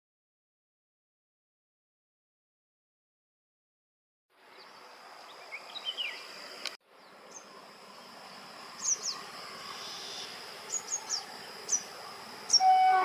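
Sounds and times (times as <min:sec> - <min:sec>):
bird chirping: 0:04.5 - 0:07.6, 0:08.7 - 0:13.0
high-pitched insect drone: 0:07.3 - 0:13.0.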